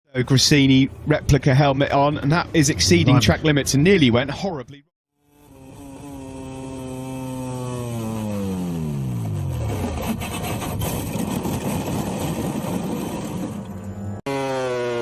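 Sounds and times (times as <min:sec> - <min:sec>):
racing motorcycle engine: 0:05.2 - 0:10.4, 0:13.4 - 0:15.0
rough grainy scraping: 0:05.4 - 0:14.2.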